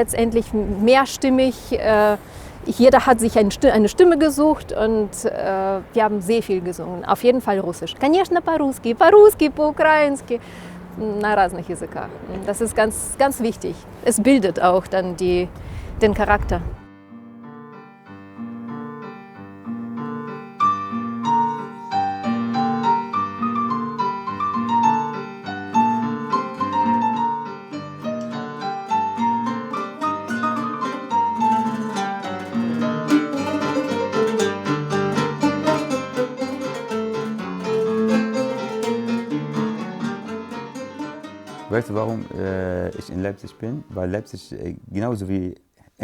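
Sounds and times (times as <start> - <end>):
solo piano melody: 16.8 - 44.2.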